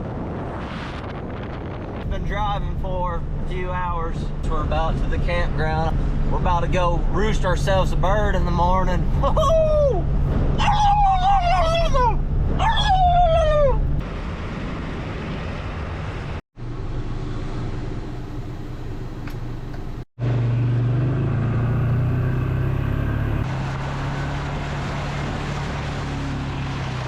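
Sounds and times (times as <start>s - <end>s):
road noise: 0.0s - 27.0s
vehicle engine drone: 0.7s - 27.0s.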